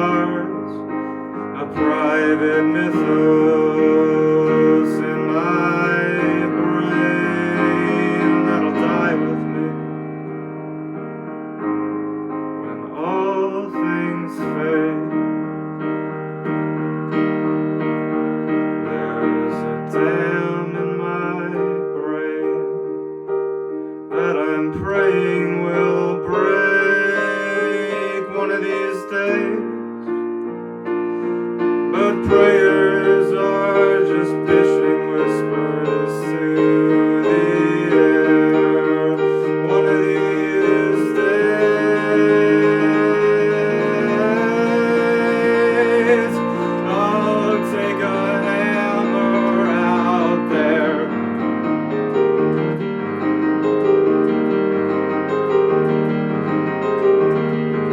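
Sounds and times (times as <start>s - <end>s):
piano chords and melody: 0.0s - 57.9s.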